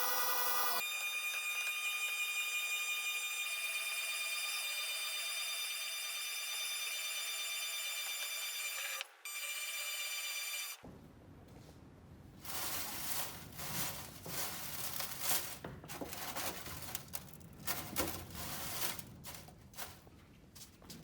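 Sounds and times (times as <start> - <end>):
crinkling and scraping handling noises: 12.4 - 21.0.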